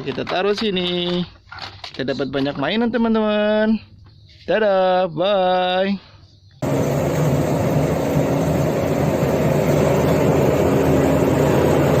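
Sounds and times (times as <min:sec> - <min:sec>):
loud mechanical rumble with hiss: 0:06.6 - 0:12.0.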